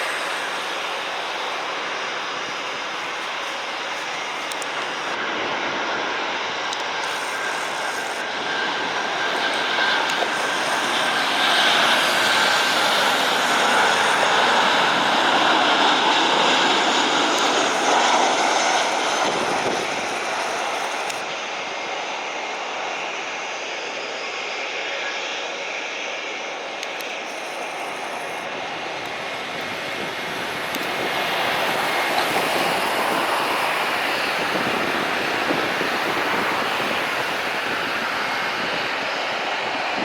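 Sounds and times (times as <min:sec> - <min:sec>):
jet engine roar: 0:00.0 - 0:40.0.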